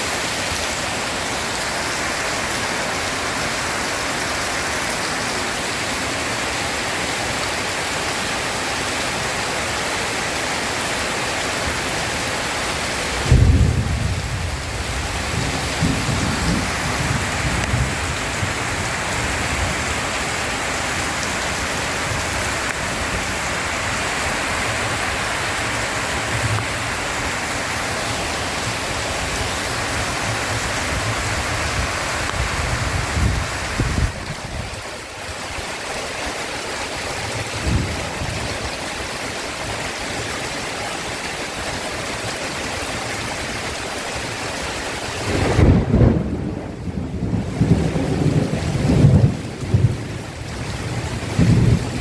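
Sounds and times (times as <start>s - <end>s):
heavy rain: 0.0s - 52.0s
rolling thunder: 13.1s - 19.9s, 45.2s - 52.0s
loud thunderclap: 13.2s - 18.8s, 45.2s - 52.0s.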